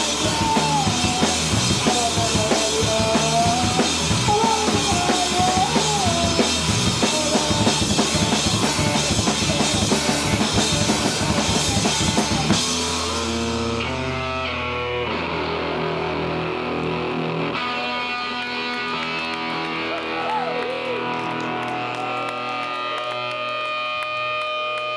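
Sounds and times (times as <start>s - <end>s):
drum kit: 0.0s - 15.3s
rock band playing: 0.0s - 24.9s.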